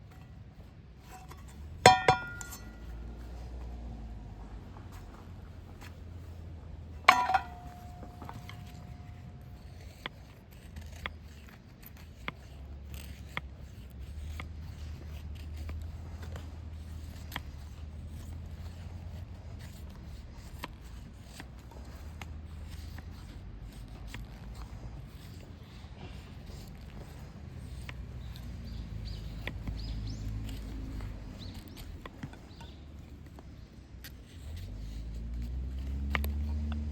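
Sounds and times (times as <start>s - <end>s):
handling clicks and scrapes: 0.0s - 36.9s
metallic clink ringing: 1.9s - 2.9s.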